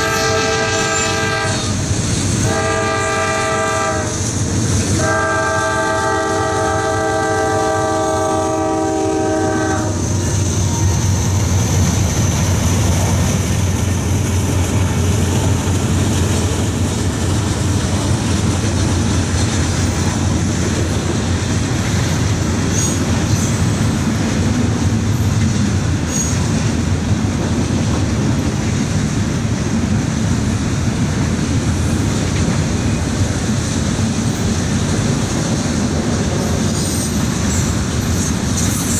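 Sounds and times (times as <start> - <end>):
locomotive air horn: 0.0 - 4.3, 4.9 - 10.8
train rumble and wheel clatter: 0.0 - 38.9.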